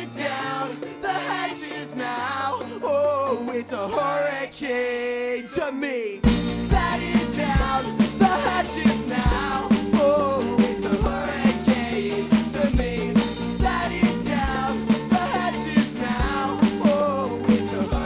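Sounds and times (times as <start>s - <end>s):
drum hits: 6.3s - 18.0s
steady bass notes: 6.3s - 18.0s.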